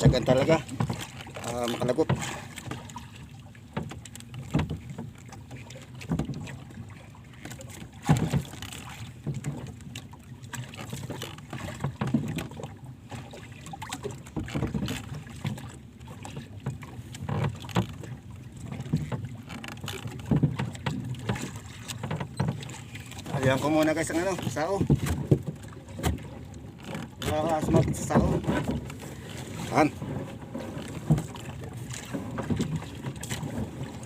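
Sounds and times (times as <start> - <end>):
low knocks and thumps: 0.0 - 1.2, 24.3 - 26.3, 27.0 - 29.0, 29.6 - 34.0
water lapping and sloshing: 0.0 - 34.0.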